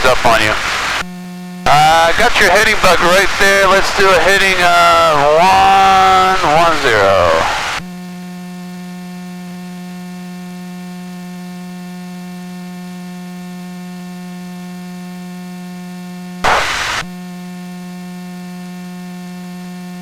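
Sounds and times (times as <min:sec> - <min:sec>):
loud burst of radio noise: 0:00.0 - 0:01.0, 0:01.7 - 0:07.8, 0:16.4 - 0:17.1
buzzy electrical hum: 0:00.0 - 0:07.8, 0:16.4 - 0:17.1.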